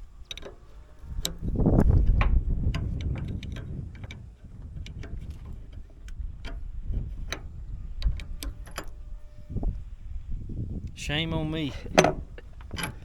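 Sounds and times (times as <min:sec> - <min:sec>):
low steady rumble: 0:00.0 - 0:13.0
metallic clicks of hand tools: 0:00.3 - 0:06.7, 0:11.9 - 0:13.0.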